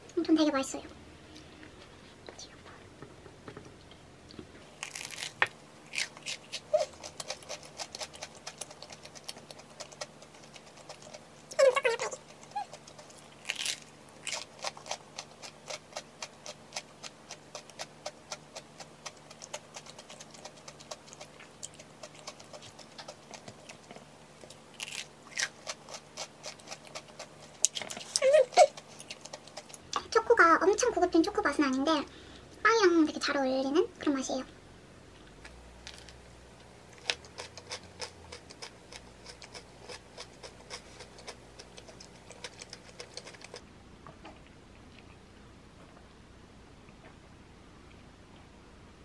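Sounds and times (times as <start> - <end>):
crunching and chewing bread: 3.8 - 30.0, 35.2 - 46.0.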